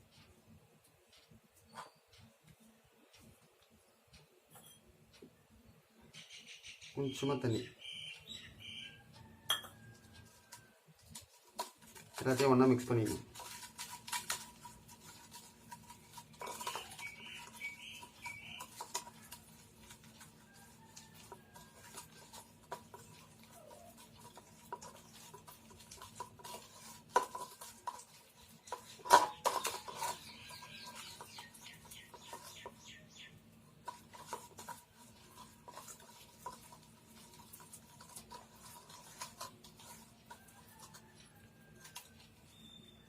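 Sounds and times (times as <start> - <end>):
utensil scraping a bowl: 9.5 - 43.0.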